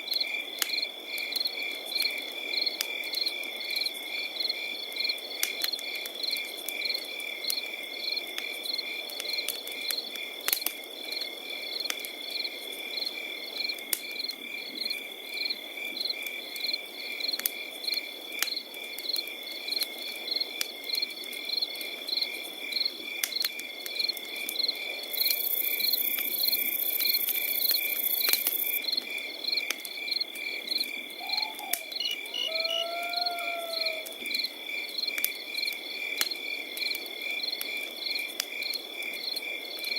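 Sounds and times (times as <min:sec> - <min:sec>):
campfire crackling: 0:00.0 - 0:39.9
crickets chirping: 0:19.0 - 0:39.9.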